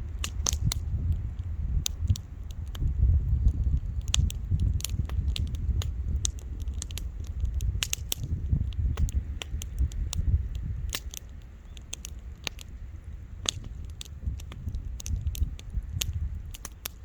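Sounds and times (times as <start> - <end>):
low rumble: 0.0 - 9.4
campfire crackling and popping: 0.0 - 17.0.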